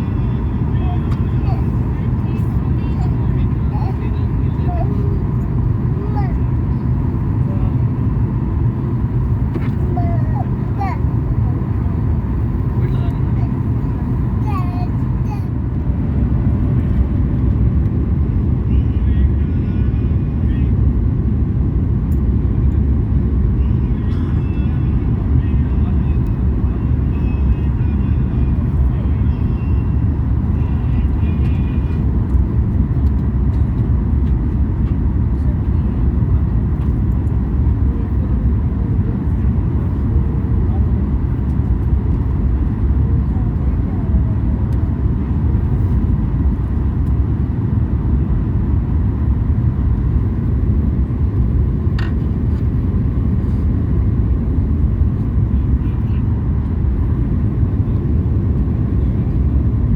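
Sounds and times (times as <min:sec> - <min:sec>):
faint voices: 0:00.0 - 0:15.6
moving vehicle rumble: 0:00.0 - 0:59.9.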